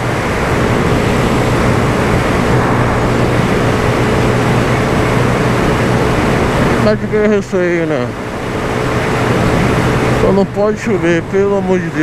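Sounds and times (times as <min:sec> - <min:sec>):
wind rush on microphone: 0:00.0 - 0:06.9
motorcycle engine hum: 0:00.0 - 0:12.0
road noise: 0:00.0 - 0:12.0.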